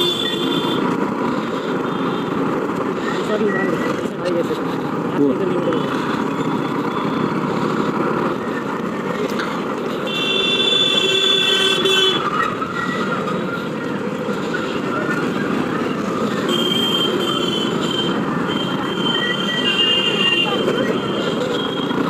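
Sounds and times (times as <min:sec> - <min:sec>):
vehicle horn: 0:00.0 - 0:00.8, 0:10.0 - 0:12.2, 0:16.4 - 0:22.0
motorbike road and wind noise: 0:00.0 - 0:22.0.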